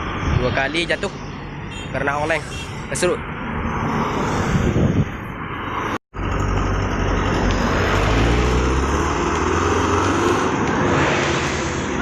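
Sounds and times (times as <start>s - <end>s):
road and tyre noise: 0.0s - 12.0s
truck engine running: 6.2s - 9.6s.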